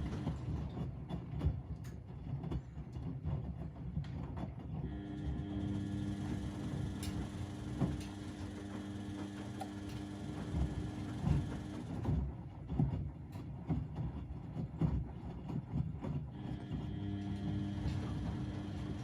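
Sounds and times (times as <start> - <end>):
washing machine motor hum: 0.0 - 1.5, 3.2 - 19.0
drum and laundry thudding: 6.1 - 19.0.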